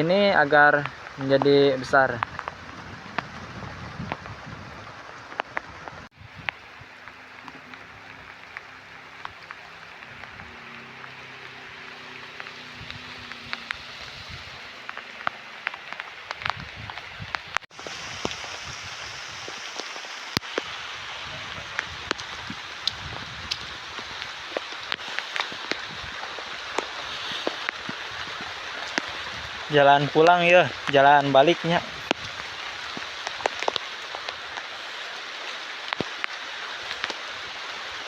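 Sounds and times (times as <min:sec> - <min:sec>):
raindrops clicking close by: 0:00.0 - 0:38.0
steady rain falling: 0:00.0 - 0:38.0.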